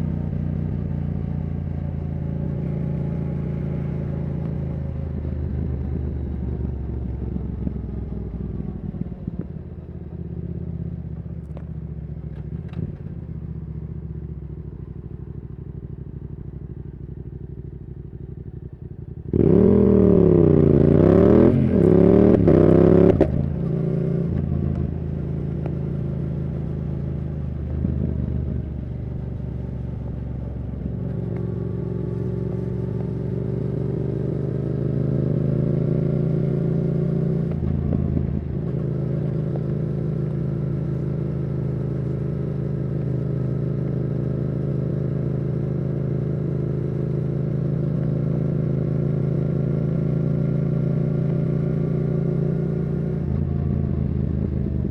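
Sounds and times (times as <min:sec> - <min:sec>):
motorcycle engine revving: 0:18.5 - 0:54.9.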